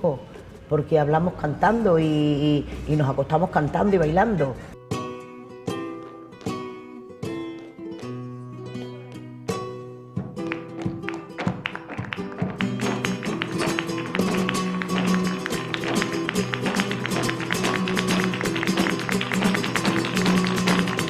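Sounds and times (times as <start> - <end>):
flamenco guitar music: 3.3 - 21.0
quick percussive taps: 10.2 - 21.0.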